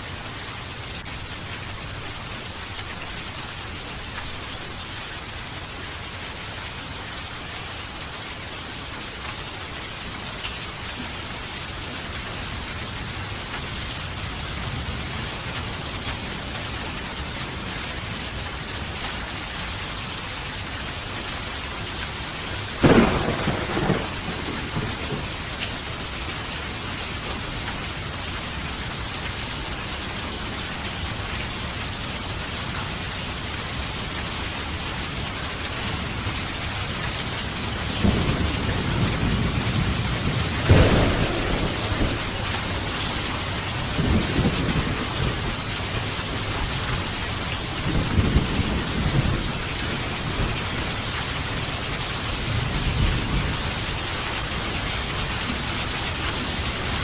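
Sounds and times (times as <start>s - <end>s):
heavy rain falling: 0.0s - 57.0s
sharp thunderclap: 22.8s - 25.3s, 38.0s - 43.2s
low thunder rumble: 22.8s - 25.6s, 37.8s - 54.0s.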